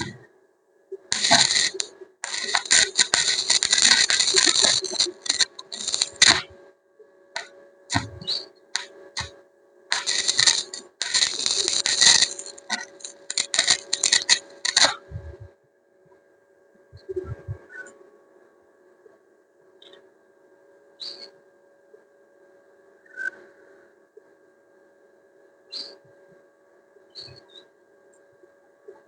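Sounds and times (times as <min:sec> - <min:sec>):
welding machine hum: 0:01.0 - 0:06.6, 0:07.3 - 0:15.5
welding arc crackling: 0:01.1 - 0:06.6, 0:07.4 - 0:15.5.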